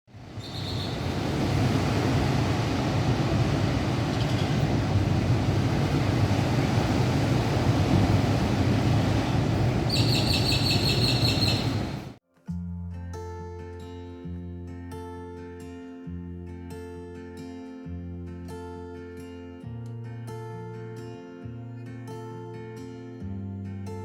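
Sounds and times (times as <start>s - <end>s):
loud rushing outdoor noise: 0.1s - 12.2s
birds chirping: 0.3s - 1.3s, 3.0s - 5.9s, 8.4s - 12.2s
high bird calls: 0.4s - 1.2s, 4.0s - 4.6s, 9.6s - 12.1s.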